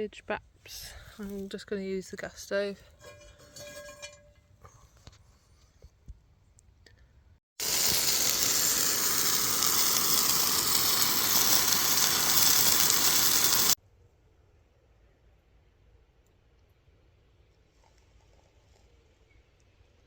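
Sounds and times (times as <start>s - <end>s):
sausages sizzling in a frying pan: 7.6s - 13.8s.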